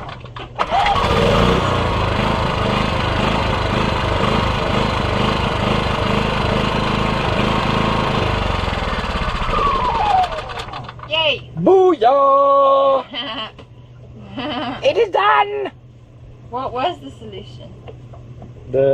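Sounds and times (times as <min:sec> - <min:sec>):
small engine running: 0:00.0 - 0:11.1.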